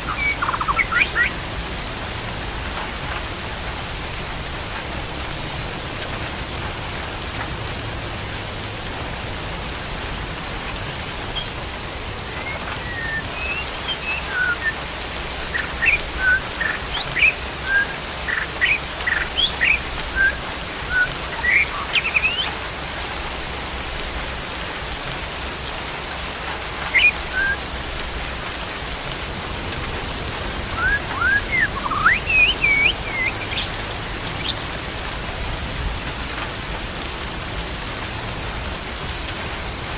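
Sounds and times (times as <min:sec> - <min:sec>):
songbird chirping: 0:00.0 - 0:01.5, 0:09.8 - 0:22.6, 0:26.8 - 0:27.7, 0:30.3 - 0:34.8
steady rain: 0:00.0 - 0:39.9.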